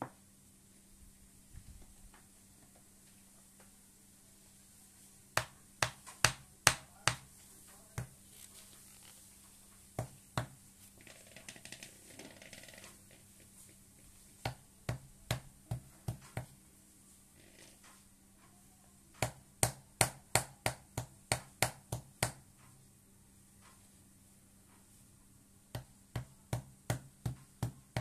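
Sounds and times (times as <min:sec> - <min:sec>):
soft rustling: 0:07.3 - 0:10.0, 0:10.6 - 0:14.4.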